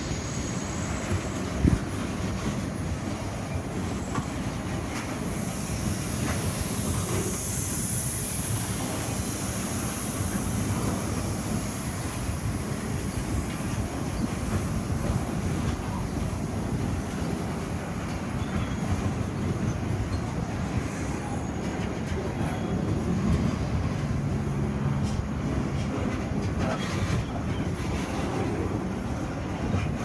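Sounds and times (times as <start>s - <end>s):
high wheel squeal: 0.0s - 1.8s, 18.1s - 21.8s
train wheels rumbling on rails: 0.0s - 30.0s.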